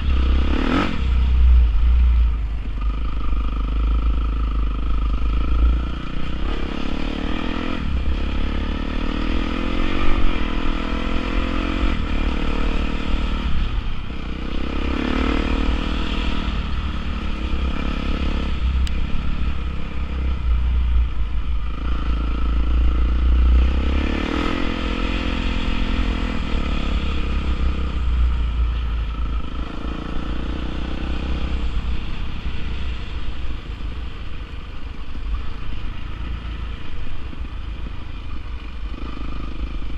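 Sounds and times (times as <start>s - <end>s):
dirt bike engine revving: 21.9s - 28.1s.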